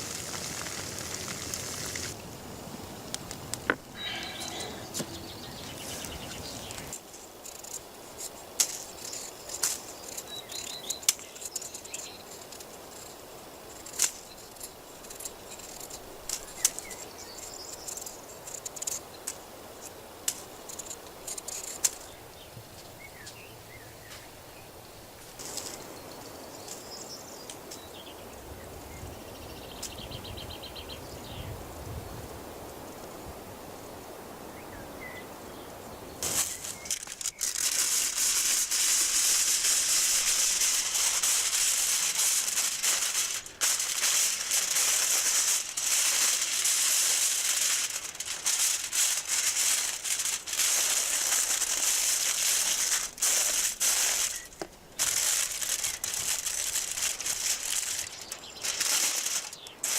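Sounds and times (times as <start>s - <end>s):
small birds chirping: 3.9s - 7.0s, 8.9s - 12.4s, 39.8s - 59.9s.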